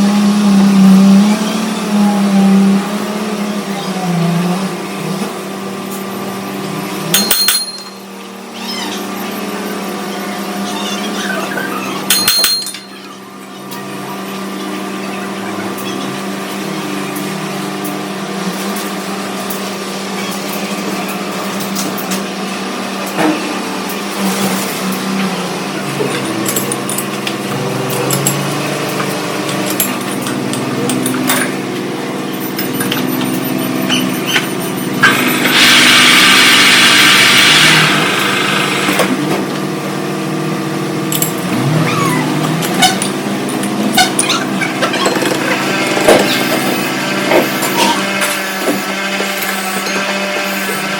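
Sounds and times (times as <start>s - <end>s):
metal lathe humming: 25.4s - 39.2s.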